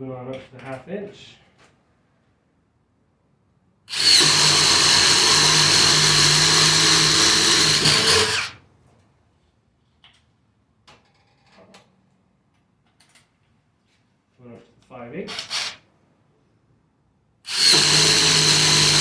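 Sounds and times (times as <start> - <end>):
impact driver boring into wood: 3.9 - 8.6, 15.3 - 15.8, 17.5 - 19.0.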